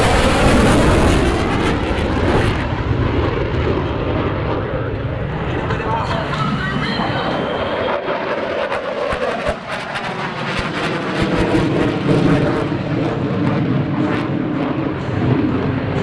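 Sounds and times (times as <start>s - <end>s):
jet engine noise with crackle: 0.0s - 16.0s.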